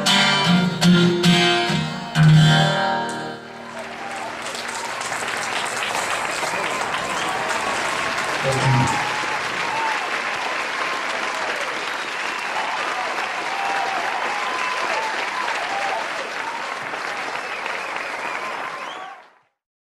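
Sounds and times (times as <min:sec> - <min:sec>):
voices cheering: 0:03.4 - 0:19.3
audience applauding: 0:03.4 - 0:19.5.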